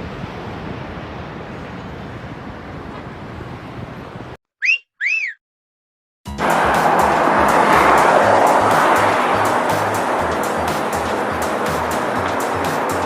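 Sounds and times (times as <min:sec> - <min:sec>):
whistled notes: 0:04.6 - 0:05.4
airliner jet noise: 0:06.3 - 0:13.0.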